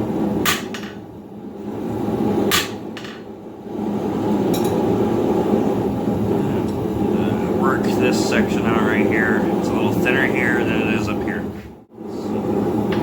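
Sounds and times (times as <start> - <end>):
steady low roar: 3.7 - 13.0.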